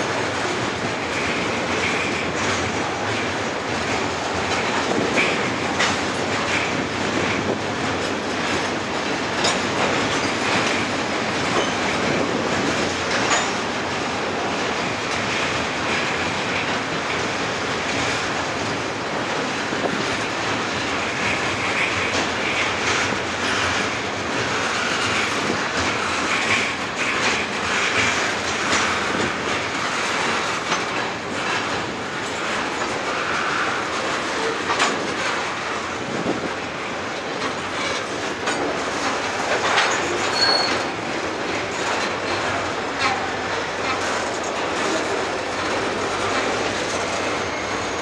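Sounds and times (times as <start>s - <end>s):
steel wheels rumbling on bridge: 0.0s - 48.0s
wheels clicking over rail joints: 0.1s - 48.0s
high wheel squeal: 39.9s - 40.9s, 47.2s - 48.0s.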